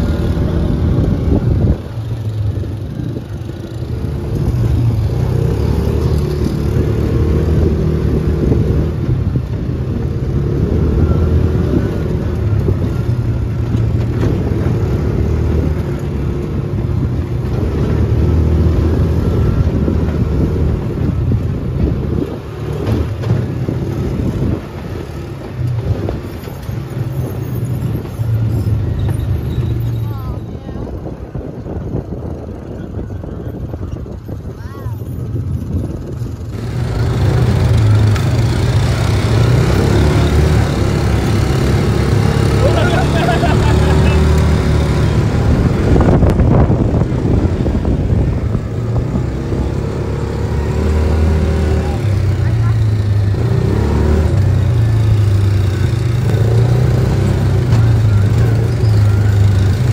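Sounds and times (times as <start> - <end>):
utv engine drone: 0.0 - 29.1, 31.2 - 59.9
utility vehicle engine running: 30.9 - 59.9.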